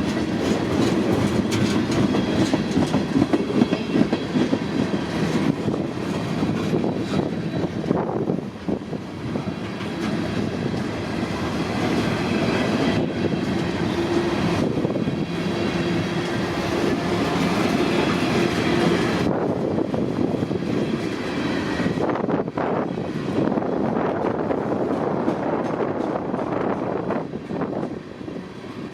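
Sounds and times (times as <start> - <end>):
wheels clicking over rail joints: 0.0 - 7.4
freight train rumbling past: 0.0 - 28.9.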